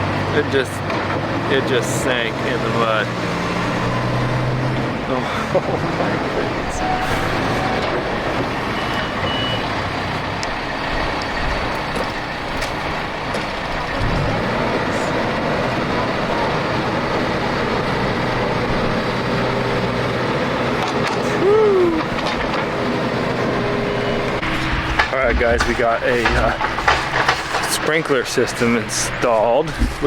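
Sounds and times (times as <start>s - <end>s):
diesel engine of heavy machinery: 0.0s - 30.0s
reversing alarm beeping: 6.3s - 11.0s.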